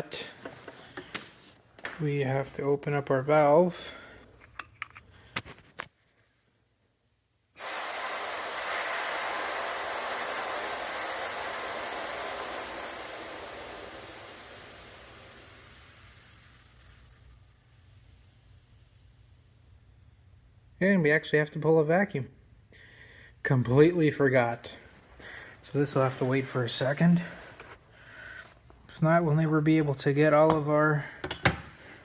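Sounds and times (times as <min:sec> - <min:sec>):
gas hissing from valve: 0:07.6 - 0:19.1.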